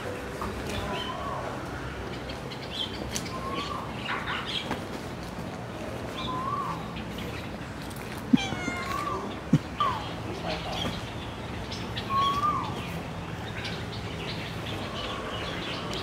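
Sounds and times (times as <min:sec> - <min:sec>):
small birds chirping: 0:06.1 - 0:16.0
cat meowing: 0:08.3 - 0:10.1.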